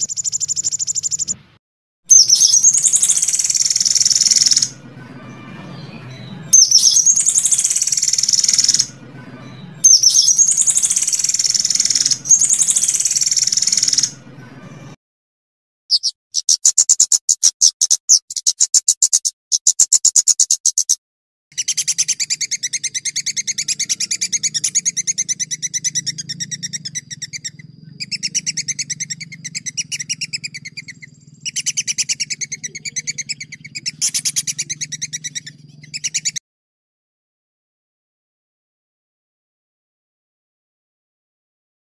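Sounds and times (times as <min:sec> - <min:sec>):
songbird rattling trills: 0:00.0 - 0:01.4, 0:02.1 - 0:04.8, 0:06.5 - 0:09.0, 0:09.8 - 0:14.2, 0:15.9 - 0:21.0, 0:21.6 - 0:36.4
steady low hum: 0:22.6 - 0:36.0.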